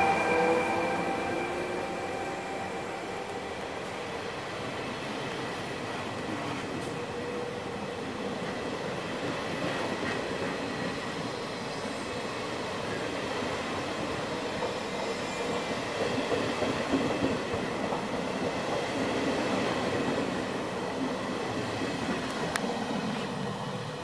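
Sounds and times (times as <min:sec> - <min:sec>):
faint high whine: 0:00.0 - 0:05.2
train wheels rumbling on rail: 0:00.0 - 0:24.0.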